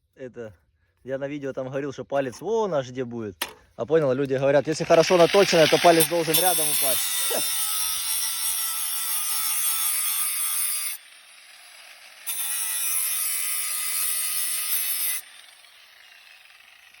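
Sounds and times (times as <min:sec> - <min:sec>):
steel blade grinding on sharpening wheel: 0:05.1 - 0:11.0, 0:12.3 - 0:15.3.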